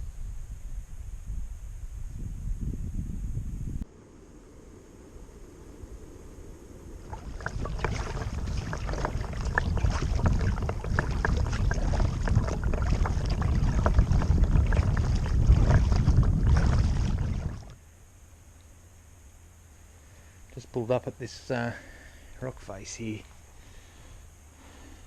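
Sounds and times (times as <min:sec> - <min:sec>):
wind rumble on microphone: 0:00.0 - 0:17.8
water splashing against kayak: 0:07.0 - 0:17.8.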